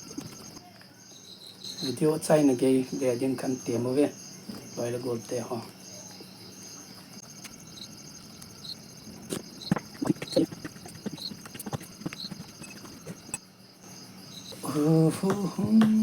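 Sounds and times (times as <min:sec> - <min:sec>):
crickets chirping: 0:00.0 - 0:16.0
wet chewing smacks: 0:09.2 - 0:13.4.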